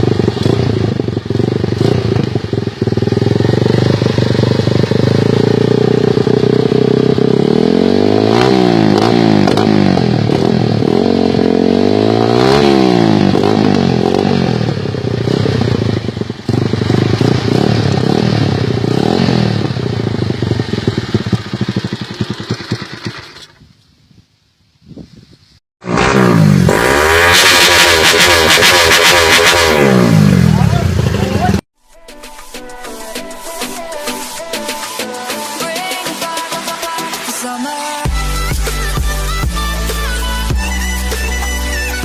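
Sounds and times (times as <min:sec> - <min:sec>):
motorcycle engine revving: 0:00.0 - 0:23.8, 0:25.8 - 0:31.7.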